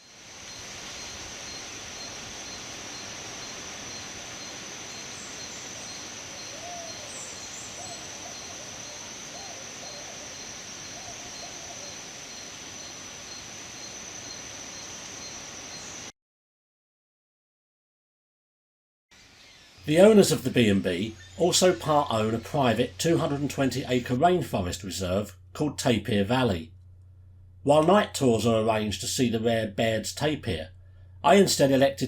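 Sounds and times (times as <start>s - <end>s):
high insect drone: 0.0s - 16.1s, 19.2s - 24.6s
pulsing insect chirp: 0.0s - 16.1s, 19.2s - 24.4s.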